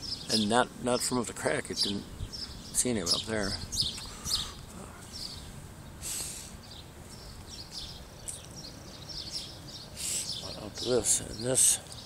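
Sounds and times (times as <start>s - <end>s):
low outdoor rumble: 0.0s - 12.0s
small birds chirping: 0.0s - 12.0s
brief hiss: 6.0s - 6.6s.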